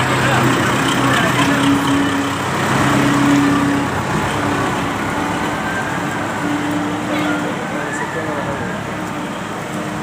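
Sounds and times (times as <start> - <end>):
tractor engine running: 0.0 - 7.7.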